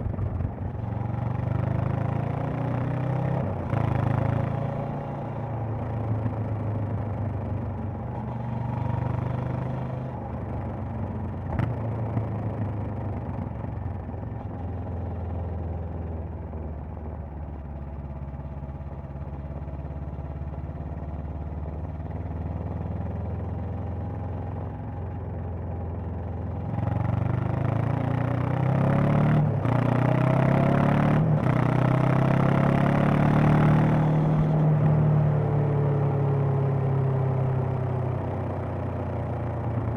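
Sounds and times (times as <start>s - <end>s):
motorcycle engine revving: 26.8s - 39.9s.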